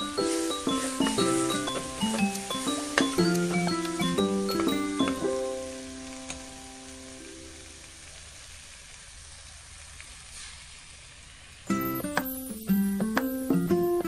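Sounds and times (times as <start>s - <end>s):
keyboard background music: 0.0s - 7.2s, 11.7s - 14.0s
eggplant sizzling in oil: 0.0s - 14.0s.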